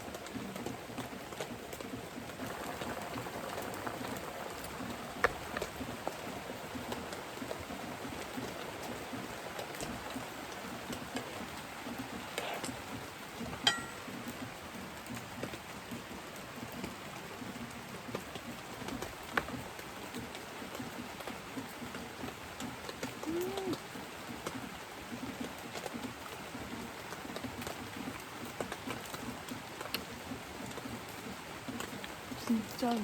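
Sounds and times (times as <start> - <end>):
steady rain falling: 0.0 - 33.0
water drips ticking: 0.0 - 33.0
sharp ringing clinks: 13.6 - 14.0.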